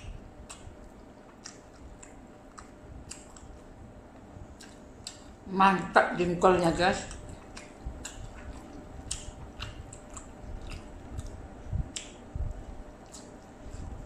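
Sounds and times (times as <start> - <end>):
chewing and wet mouth noises: 0.0 - 5.4, 6.8 - 14.0
dull low thumps: 9.0 - 12.9.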